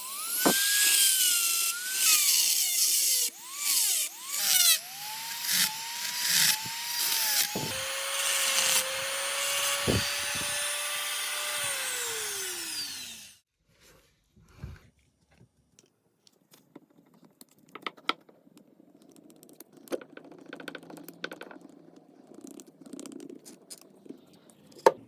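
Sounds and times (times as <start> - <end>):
power tool grinding rusty metal: 0.0 - 13.4
motor spinning down whine: 6.4 - 13.4.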